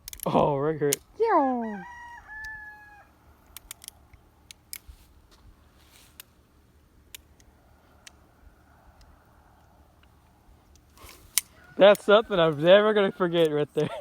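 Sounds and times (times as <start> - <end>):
rooster crowing: 1.6 - 3.2, 11.4 - 13.5.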